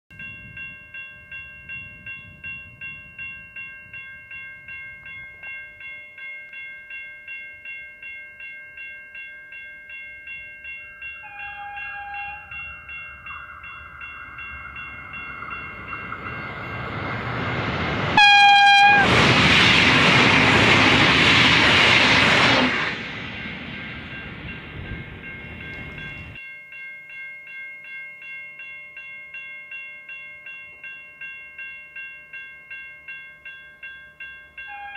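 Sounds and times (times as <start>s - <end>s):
train wheel and wind noise: 0.1s - 34.9s
train horn: 11.2s - 12.8s, 18.2s - 19.2s, 34.6s - 34.9s.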